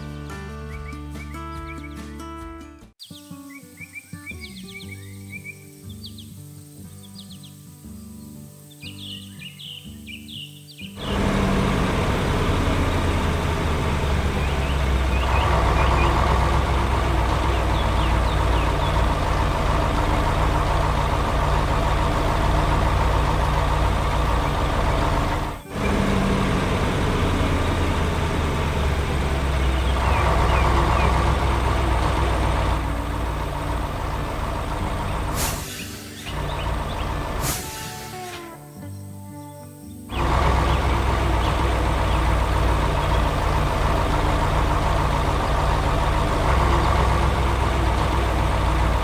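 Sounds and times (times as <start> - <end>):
diesel engine rumbling: 10.3 - 38.8, 40.0 - 49.0.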